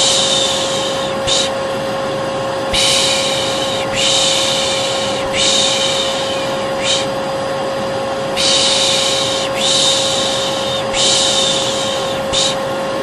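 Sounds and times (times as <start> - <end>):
person shushing: 0.0 - 1.6, 2.7 - 7.2, 8.4 - 12.7
hair dryer hum: 0.0 - 13.0.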